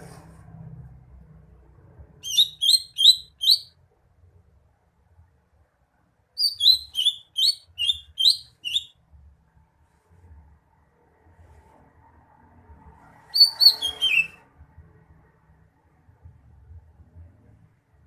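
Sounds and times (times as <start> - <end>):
bird singing whistled notes: 2.2 - 3.7, 6.4 - 9.0, 13.3 - 14.4.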